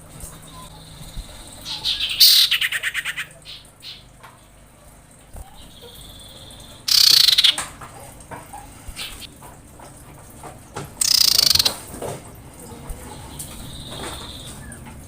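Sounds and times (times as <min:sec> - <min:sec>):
bird chattering trill: 0:00.4 - 0:04.2, 0:05.4 - 0:07.7, 0:08.9 - 0:09.3, 0:11.0 - 0:11.8
bird high whistle: 0:05.6 - 0:07.6, 0:11.0 - 0:11.7.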